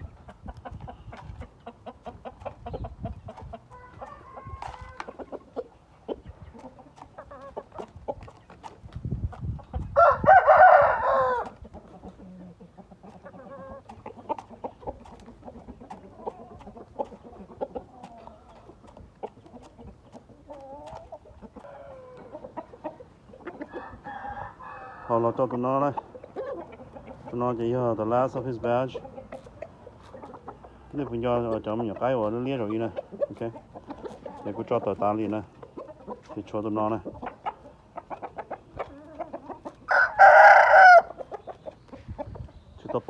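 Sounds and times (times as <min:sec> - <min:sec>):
chicken clucks: 0:00.0 - 0:43.0
rooster crowing: 0:10.0 - 0:11.4, 0:23.7 - 0:25.2, 0:39.9 - 0:41.1.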